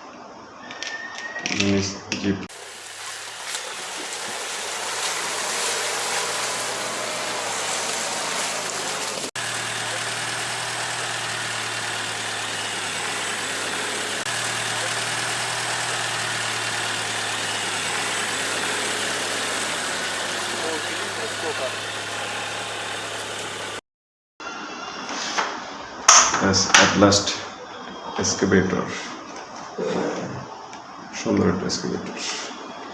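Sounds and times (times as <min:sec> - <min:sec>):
machine hum: 0:02.5 - 0:23.8.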